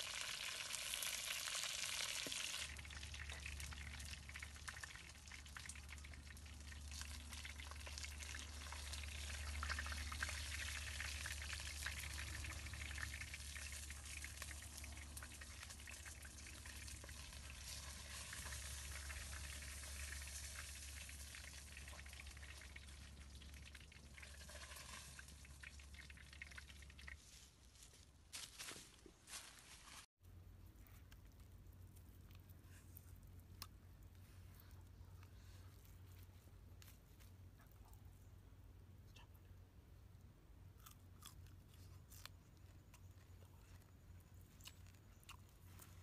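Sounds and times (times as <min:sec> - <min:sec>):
food frying in hot oil: 0:00.0 - 0:27.2.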